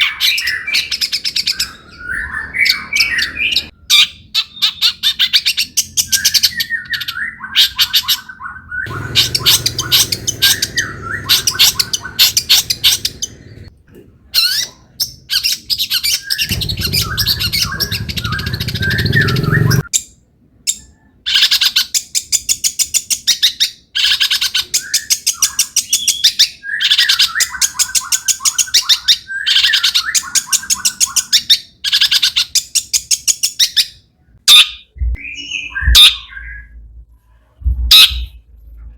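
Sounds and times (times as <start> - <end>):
bird song with harsh chattering: 0.0 - 13.7, 14.4 - 36.9
low rumble: 16.4 - 19.9, 35.0 - 38.9.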